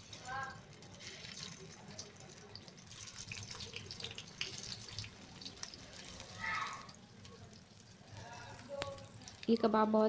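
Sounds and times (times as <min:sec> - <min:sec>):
patties sizzling in hot oil: 0:00.0 - 0:10.0.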